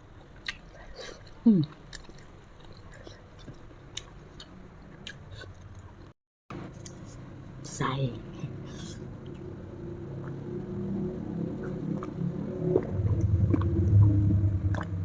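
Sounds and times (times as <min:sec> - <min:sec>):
person chewing food: 0:00.2 - 0:06.0, 0:11.5 - 0:15.0
wet mouth clicks and smacks: 0:11.6 - 0:15.0
brief falling hum: 0:12.9 - 0:15.0.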